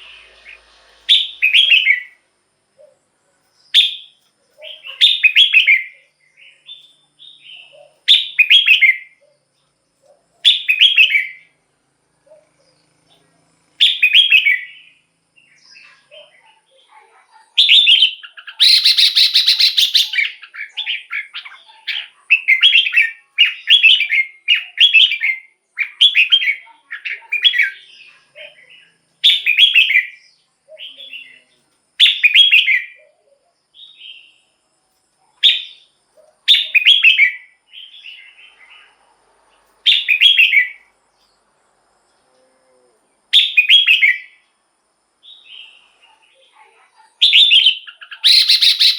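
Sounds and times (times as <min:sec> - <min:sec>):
bird whistled phrases: 0:00.0 - 0:02.2, 0:03.8 - 0:06.0, 0:17.6 - 0:27.8, 0:32.0 - 0:33.2, 0:36.5 - 0:38.0, 0:43.4 - 0:44.4, 0:47.2 - 0:48.9
harsh buzzy bird call: 0:00.0 - 0:02.2, 0:17.7 - 0:21.6, 0:47.3 - 0:48.9.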